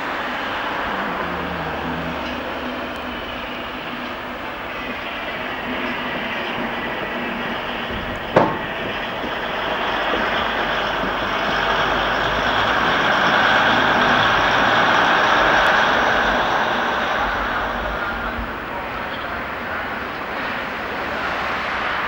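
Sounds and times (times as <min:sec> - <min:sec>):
diesel train rumbling: 0:00.0 - 0:22.0
sharp knock: 0:07.9 - 0:09.1.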